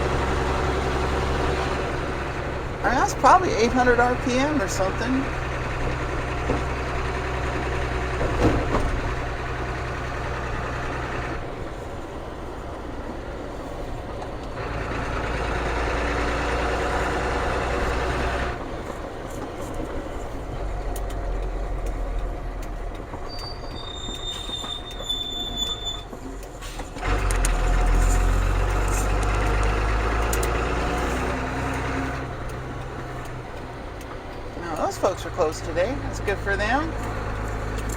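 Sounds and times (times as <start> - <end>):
diesel truck engine drone: 0.0 - 37.9
high-pitched squeals: 23.2 - 26.9.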